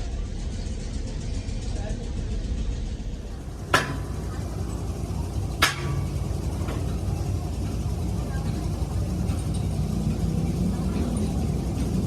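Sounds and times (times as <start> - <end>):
low engine rumble: 0.0 - 12.0
metal-on-metal clanks: 3.6 - 4.4, 5.5 - 7.8.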